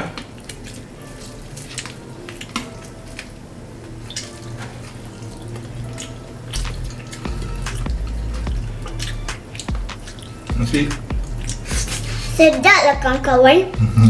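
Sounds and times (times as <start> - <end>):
crunchy fried chicken chewing: 4.9 - 12.3
wet mouth clicks: 6.0 - 10.4, 11.0 - 12.2.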